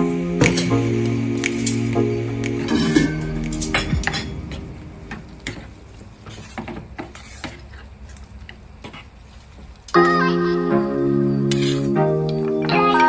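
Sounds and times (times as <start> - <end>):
background music: 0.0 - 6.0, 10.0 - 13.0.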